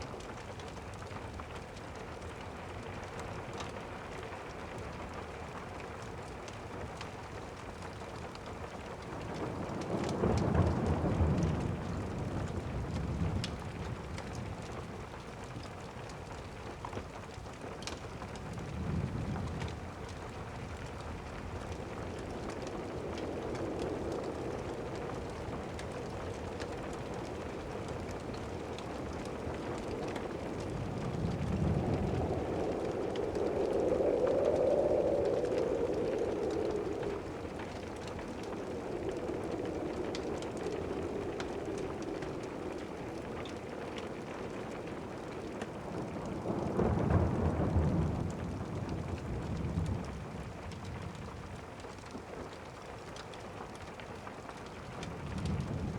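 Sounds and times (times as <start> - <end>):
fireplace crackles: 0.0 - 55.9
steady rain: 0.0 - 55.9
distant thunder rolling: 8.8 - 15.2, 18.4 - 52.6.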